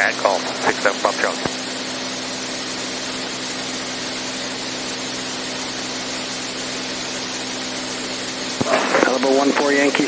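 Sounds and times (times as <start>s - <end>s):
propeller plane engine drone: 0.0s - 8.9s
rushing hiss: 1.8s - 8.6s.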